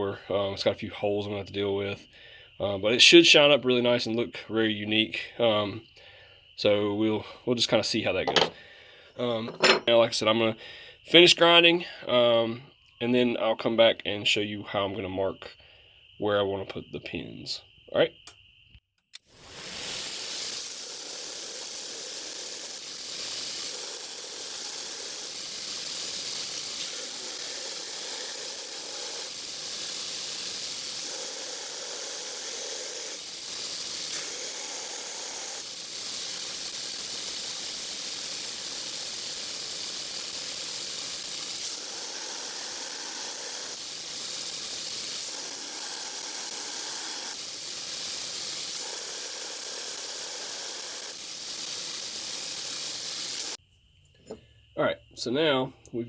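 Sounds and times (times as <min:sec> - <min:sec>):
grinder grinding knife blade: 0:08.2 - 0:08.6, 0:09.4 - 0:10.0.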